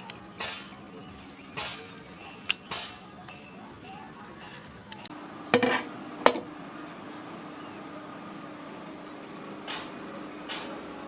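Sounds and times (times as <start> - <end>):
metal clanking on metal: 5.5 - 6.5.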